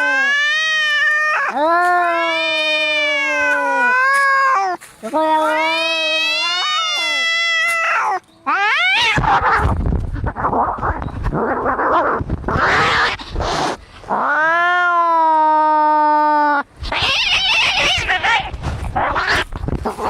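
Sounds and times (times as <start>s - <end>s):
cat caterwaul: 0.0s - 9.7s, 14.1s - 20.0s
cats yowling: 0.0s - 13.2s, 14.1s - 20.0s
cats hissing and snarling: 0.0s - 20.0s.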